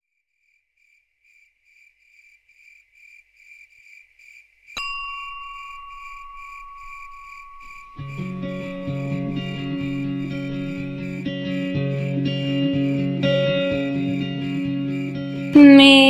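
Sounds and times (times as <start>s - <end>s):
crickets chirping: 0.4s - 15.8s
bell-like chime ringing: 4.8s - 11.2s.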